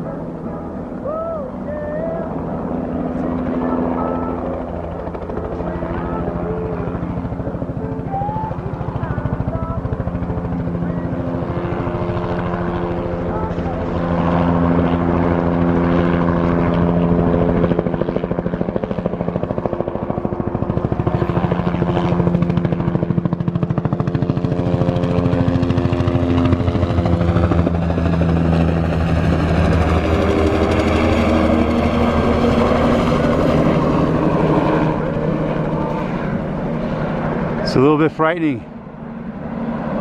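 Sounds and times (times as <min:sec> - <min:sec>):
helicopter engine drone: 0:00.0 - 0:40.0
helicopter rotor chopping: 0:00.0 - 0:40.0.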